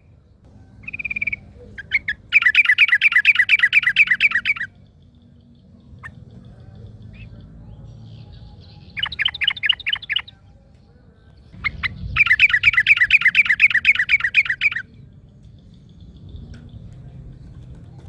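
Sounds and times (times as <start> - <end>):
bulbul singing rapid notes: 0.8 - 5.0, 8.6 - 10.3, 11.6 - 15.0.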